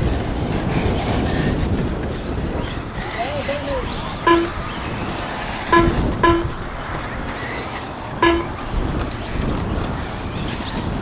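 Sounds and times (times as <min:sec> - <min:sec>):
steady track noise: 0:04.2 - 0:04.8, 0:05.6 - 0:07.0, 0:08.2 - 0:08.7
short electronic beeps: 0:04.3 - 0:04.6, 0:05.7 - 0:06.6, 0:08.2 - 0:08.6.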